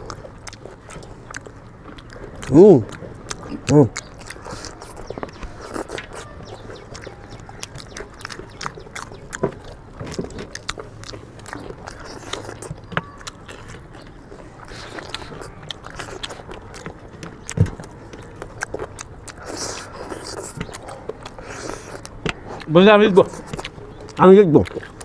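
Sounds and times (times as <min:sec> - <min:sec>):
people chewing and smacking: 0:00.0 - 0:25.0.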